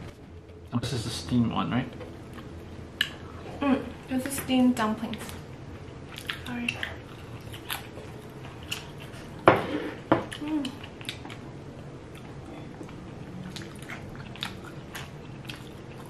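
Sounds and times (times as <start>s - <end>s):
chewing and wet mouth sounds: 5.8s - 9.4s, 10.2s - 16.0s.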